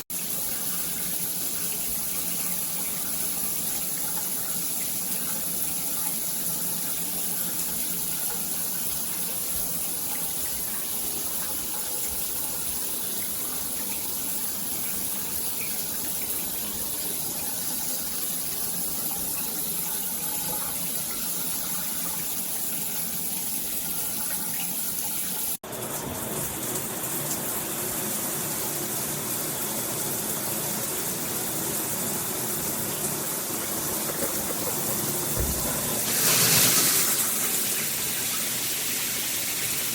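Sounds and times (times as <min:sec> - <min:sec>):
shower head spraying water: 0:26.7 - 0:39.9.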